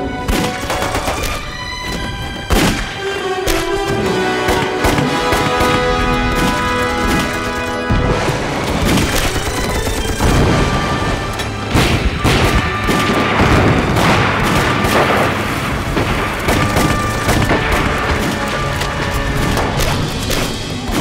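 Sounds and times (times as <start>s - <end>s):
background music: 0.0s - 21.0s
gunfire bursts: 0.1s - 1.8s, 2.4s - 21.0s
explosion booms: 10.2s - 18.3s.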